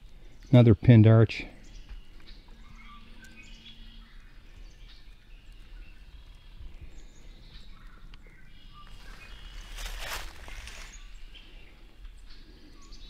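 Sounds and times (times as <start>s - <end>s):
small birds chirping: 0.0s - 13.0s
noisy rustle: 8.9s - 11.2s.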